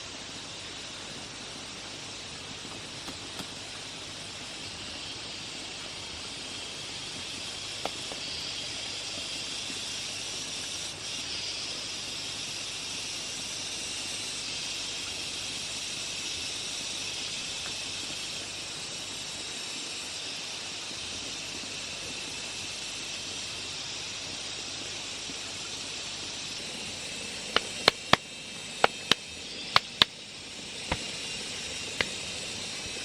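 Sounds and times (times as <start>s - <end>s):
high-pitched hiss: 0.0s - 33.0s
sharp click: 27.6s - 28.2s, 28.8s - 30.1s.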